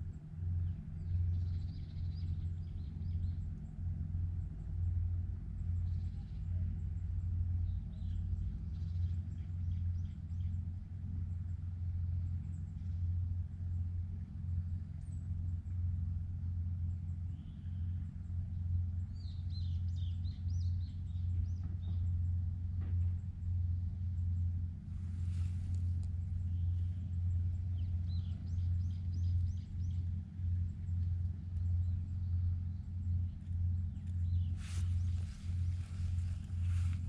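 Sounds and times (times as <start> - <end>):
low rumble: 0.0 - 37.0
small birds chirping: 25.2 - 37.0.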